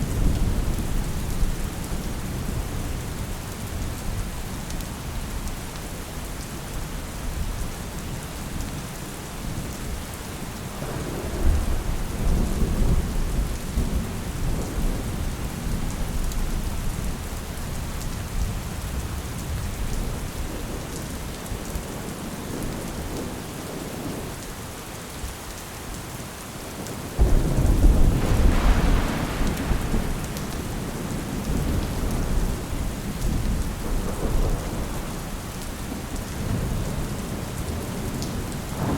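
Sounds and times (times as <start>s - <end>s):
steady rain: 0.0s - 38.9s
thunder rumbling: 10.8s - 17.2s, 27.2s - 38.9s.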